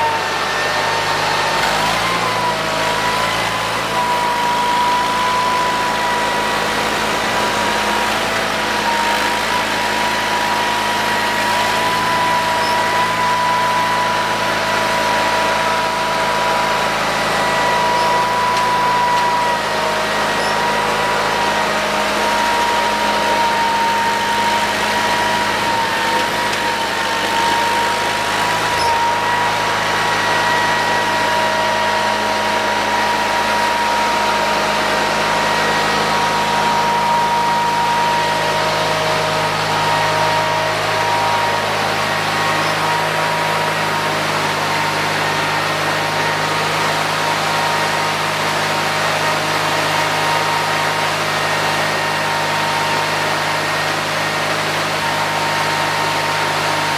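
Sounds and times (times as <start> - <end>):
garden tractor engine running: 0.0 - 56.9.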